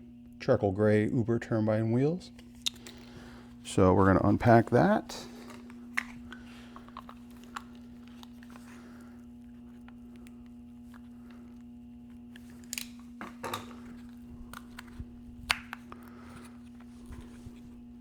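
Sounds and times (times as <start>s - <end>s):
steady low hum: 0.0s - 18.0s
cardboard packaging clicks and crinkles: 5.4s - 18.0s.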